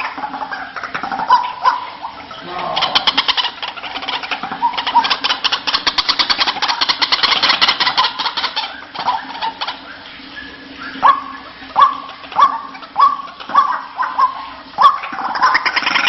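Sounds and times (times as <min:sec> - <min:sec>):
faint steady hum: 0:00.0 - 0:16.0
waterhen calling: 0:00.0 - 0:16.0.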